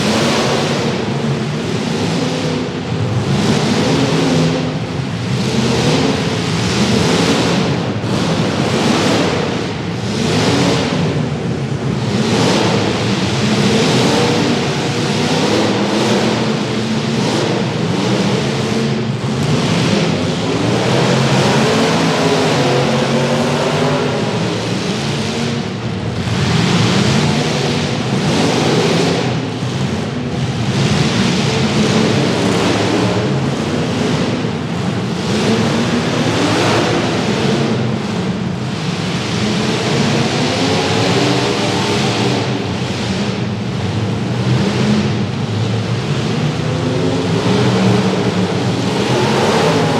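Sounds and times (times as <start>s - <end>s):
car engines revving: 0.0s - 49.9s
rushing noise: 38.8s - 49.9s.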